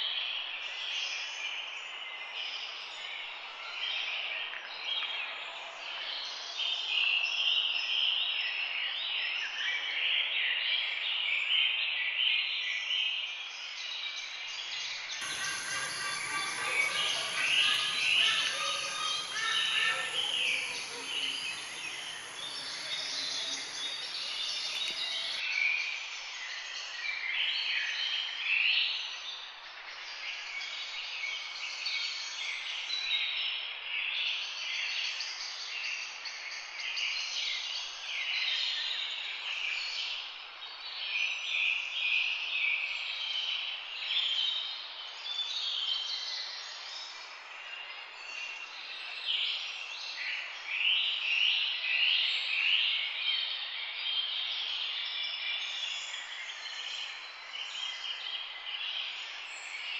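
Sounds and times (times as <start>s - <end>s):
birds chirping and calling: 15.2s - 25.4s.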